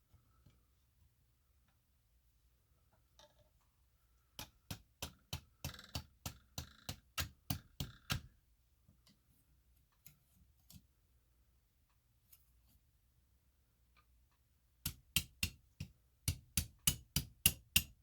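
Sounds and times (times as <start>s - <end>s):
hammer tapping steel chisel: 4.4s - 8.3s, 14.8s - 18.0s.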